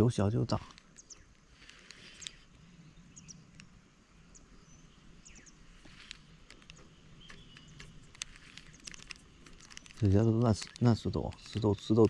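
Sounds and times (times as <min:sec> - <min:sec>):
small ticks: 0:00.3 - 0:04.6, 0:05.2 - 0:12.0.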